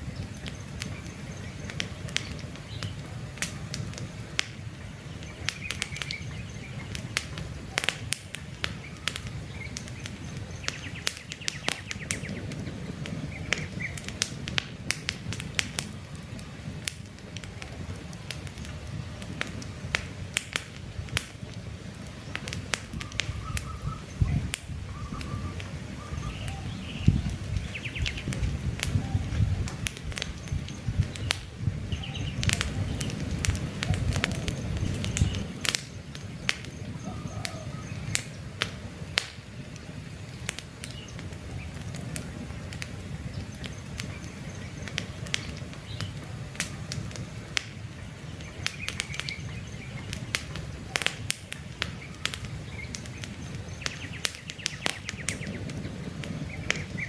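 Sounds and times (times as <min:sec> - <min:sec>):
birds chirping: 0:00.0 - 0:14.6, 0:15.4 - 0:57.0
campfire crackling and popping: 0:00.0 - 0:57.0
low rumble of flames: 0:00.0 - 0:57.0.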